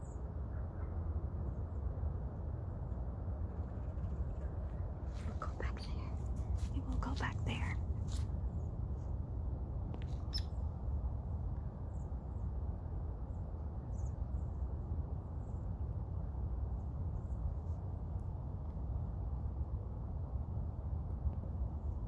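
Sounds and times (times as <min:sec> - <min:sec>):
high bird chirps: 0:10.2 - 0:10.6.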